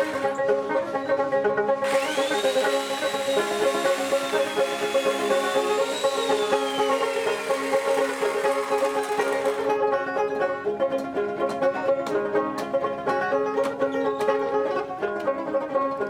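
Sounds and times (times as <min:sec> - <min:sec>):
plucked folk lute melody: 0:00.0 - 0:01.9, 0:09.2 - 0:16.0
high hiss: 0:01.9 - 0:08.8.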